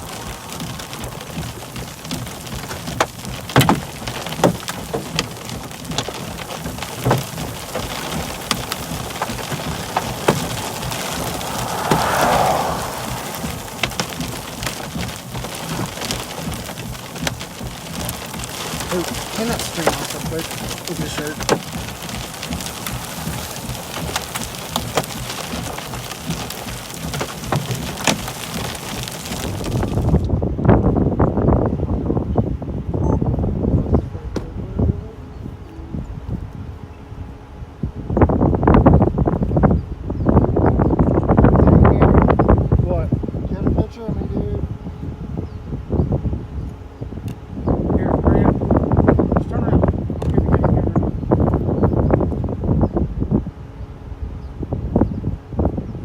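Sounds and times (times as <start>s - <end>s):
heavy raindrops ticking: 0.0s - 30.3s
steady rain hiss: 0.0s - 30.3s.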